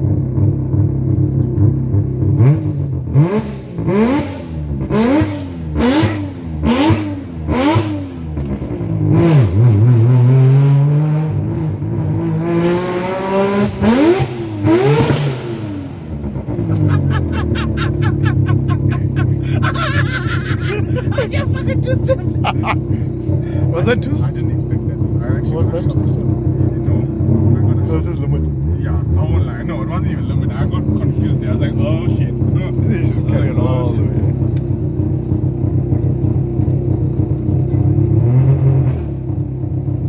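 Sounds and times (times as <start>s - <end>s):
rotary engine idling and revving: 0.0s - 40.0s
sharp exhaust cracks: 13.6s - 27.8s.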